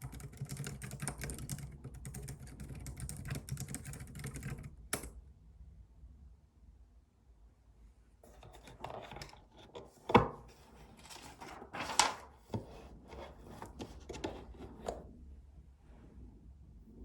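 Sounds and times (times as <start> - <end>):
rustling and scraping on desk: 8.2 - 15.1.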